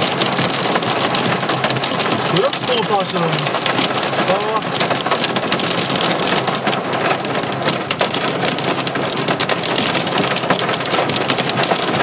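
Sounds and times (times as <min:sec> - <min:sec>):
hail and rain on car body: 0:00.0 - 0:12.0.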